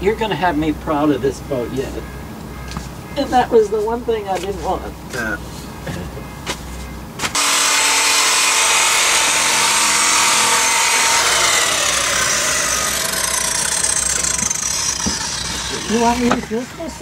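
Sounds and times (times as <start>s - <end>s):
power grinder grinding fiberglass: 7.4s - 17.0s.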